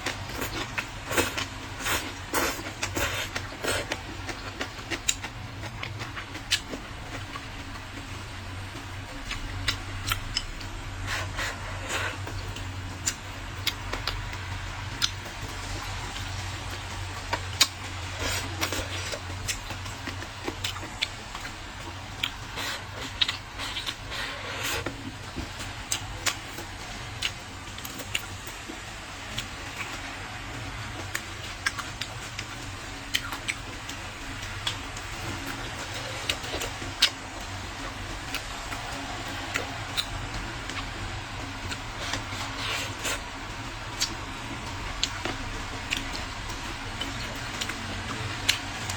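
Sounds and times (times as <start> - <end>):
wet chewing: 0.0 - 28.7, 31.0 - 48.9.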